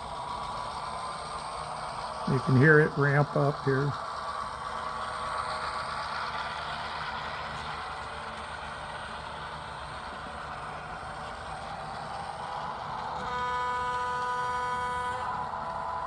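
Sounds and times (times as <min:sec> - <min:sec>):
diesel engine sound through speaker: 0:00.0 - 0:16.0
locomotive horn: 0:13.1 - 0:16.0.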